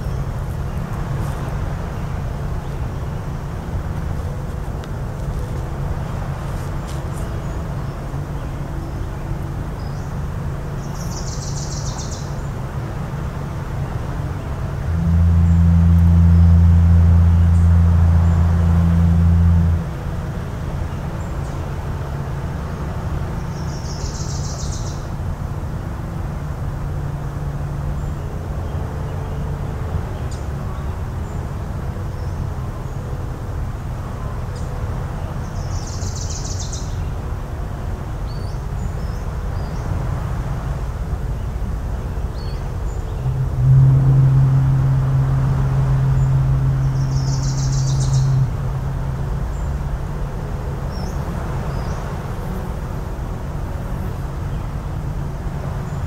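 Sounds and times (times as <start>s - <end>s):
foghorn blast: 14.4s - 20.3s, 43.2s - 49.3s.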